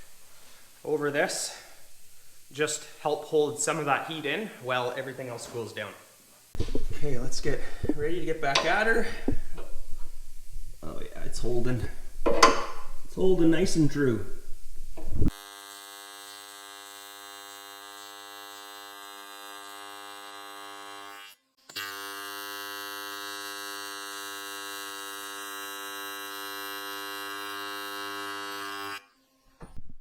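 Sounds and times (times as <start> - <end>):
welding arc buzzing: 6.3 - 29.9.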